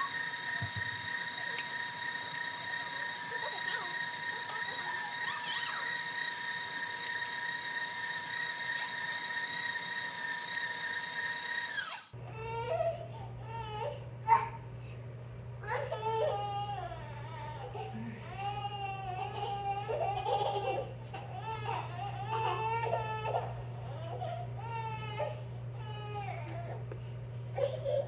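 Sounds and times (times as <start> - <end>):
electric mixer motor whine: 0.0 - 12.2.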